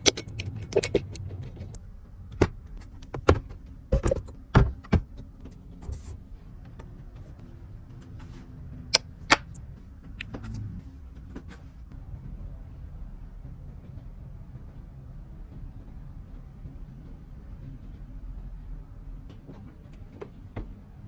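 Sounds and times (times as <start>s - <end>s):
sharp knocks and clicks: 0.0s - 5.7s
low steady rumble: 0.0s - 21.0s.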